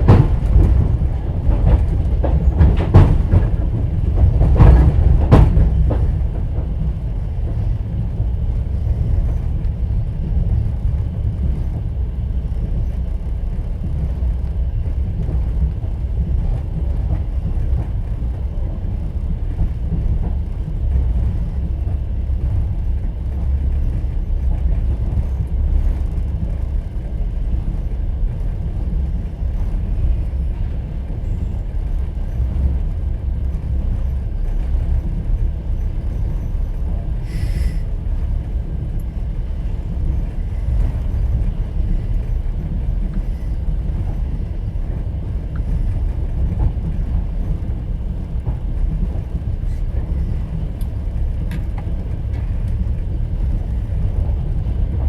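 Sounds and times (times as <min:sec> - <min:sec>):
low train rumble: 0:00.0 - 0:55.0
train wheels clacking on rail joints: 0:00.0 - 0:55.0.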